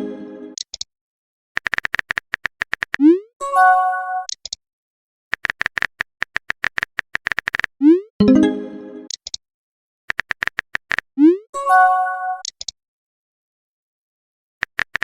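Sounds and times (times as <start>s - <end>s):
bright chime: 8.2s - 9.1s.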